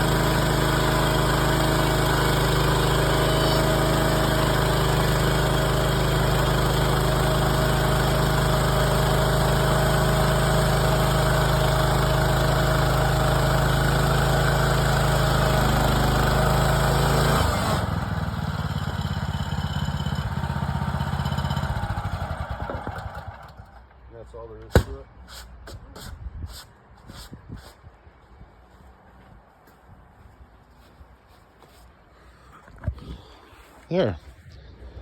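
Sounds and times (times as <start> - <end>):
sawmill gas engine running: 0.0 - 23.8.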